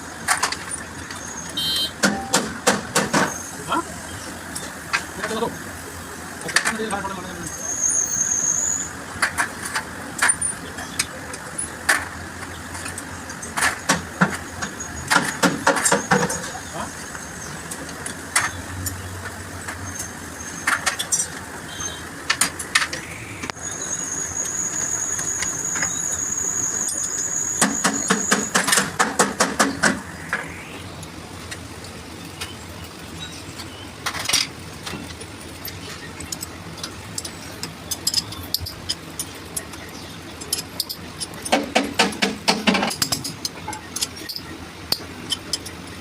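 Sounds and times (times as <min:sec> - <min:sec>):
workshop background noise: 0:00.0 - 0:46.0
hand tools clicking on metal: 0:35.7 - 0:45.8.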